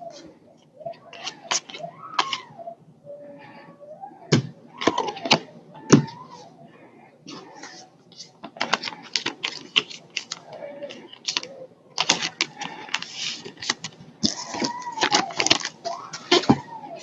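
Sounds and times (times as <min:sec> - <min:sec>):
cards clicking and snapping: 0:01.1 - 0:02.4, 0:08.5 - 0:10.6, 0:11.2 - 0:16.6.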